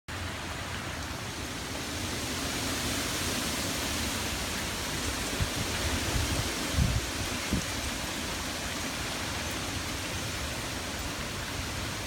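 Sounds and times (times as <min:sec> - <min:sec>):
rain and wind hissing: 0:00.1 - 0:12.0
wind buffeting microphone: 0:04.3 - 0:11.9.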